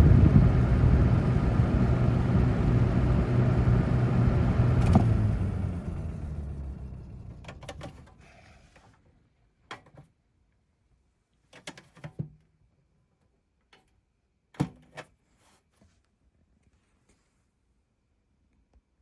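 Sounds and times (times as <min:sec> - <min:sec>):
box fans coasting down: 0:00.0 - 0:08.6.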